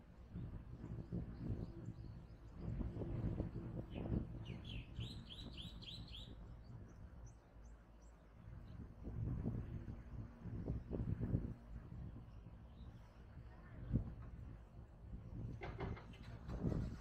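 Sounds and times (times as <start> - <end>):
bird chirping: 4.5 - 6.4.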